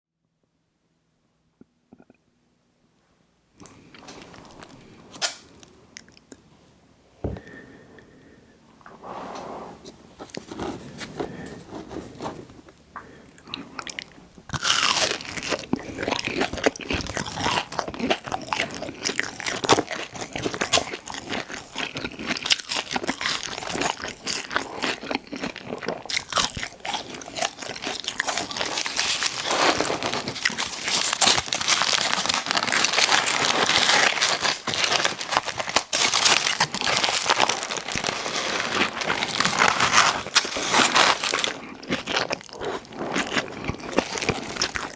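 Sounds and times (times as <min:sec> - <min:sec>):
crunchy chewing of fried food: 0:10.2 - 0:44.9.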